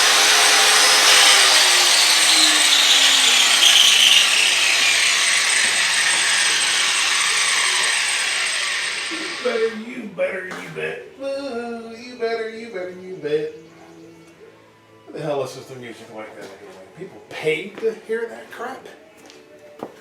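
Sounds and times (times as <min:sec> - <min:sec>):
grinder sharpening metal blade: 0:00.0 - 0:09.5.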